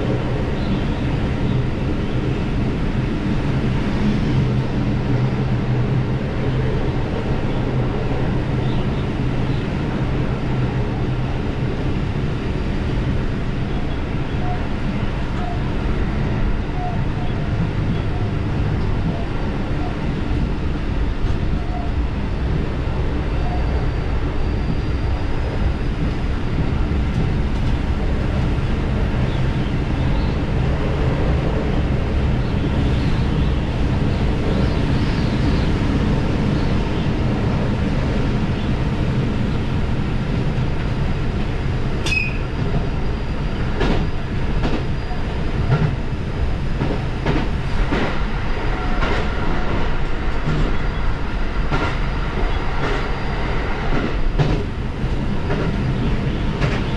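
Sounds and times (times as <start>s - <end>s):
diesel railcar rumbling: 0.0s - 56.9s
train wheels clicking on track: 24.5s - 39.3s, 40.3s - 56.9s.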